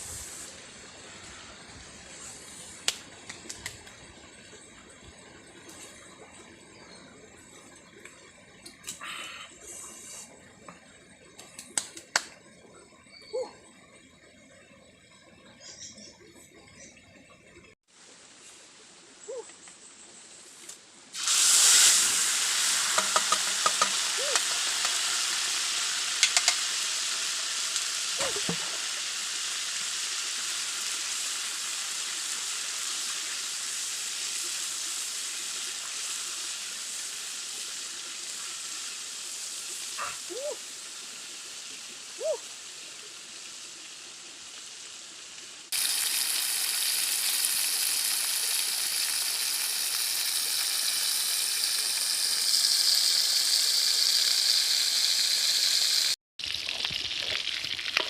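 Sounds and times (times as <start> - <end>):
food sizzling: 0.0 - 3.9, 20.2 - 58.0.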